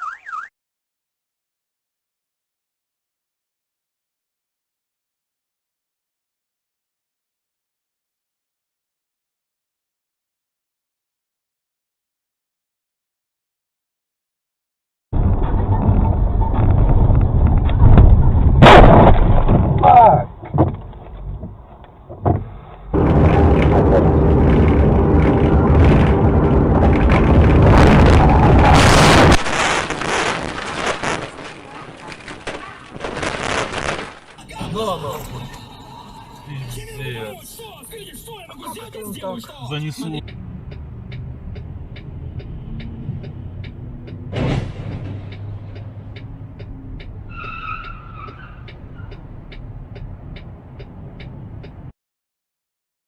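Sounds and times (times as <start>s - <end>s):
loud vehicle engine rumble: 15.2s - 29.4s, 40.0s - 51.9s
car engine running: 22.8s - 28.5s
sudden loud burst of noise: 23.0s - 30.0s
regular ticking: 36.8s - 44.2s, 45.2s - 51.9s.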